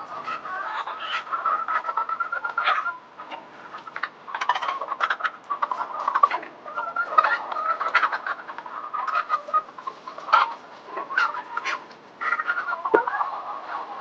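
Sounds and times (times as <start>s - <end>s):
hens clucking: 0.0s - 14.0s
sharp clicks and taps: 12.9s - 13.1s.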